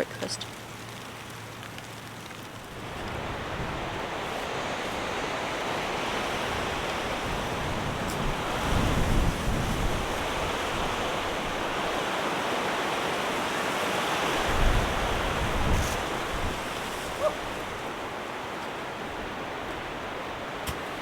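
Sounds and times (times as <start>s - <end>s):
strong wind blowing: 2.7s - 12.0s, 14.4s - 17.9s
wind buffeting microphone: 2.7s - 12.0s, 14.4s - 18.0s.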